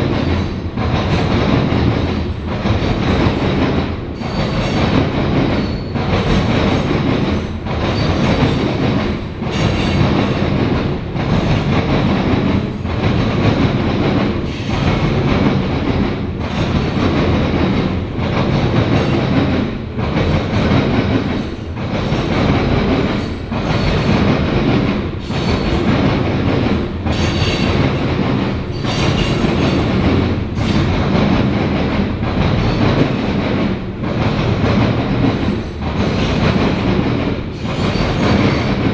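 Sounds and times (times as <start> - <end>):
train wheels clacking on rails: 0.0 - 38.9
faint high wheel squeal: 5.6 - 6.0.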